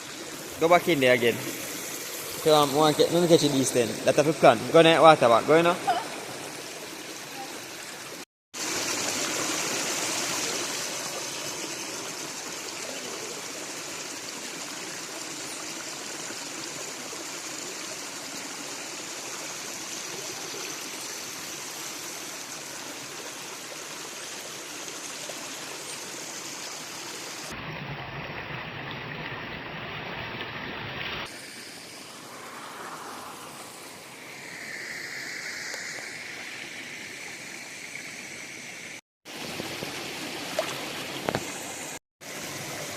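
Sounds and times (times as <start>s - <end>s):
river water rushing: 39.3s - 42.9s.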